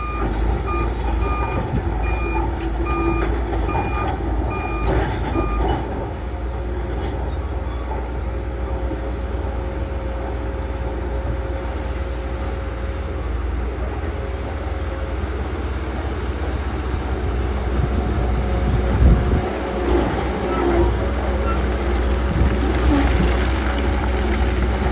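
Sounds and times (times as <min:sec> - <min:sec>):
reversing alarm beeping: 0:00.0 - 0:05.9
bulldozer running: 0:00.0 - 0:24.9.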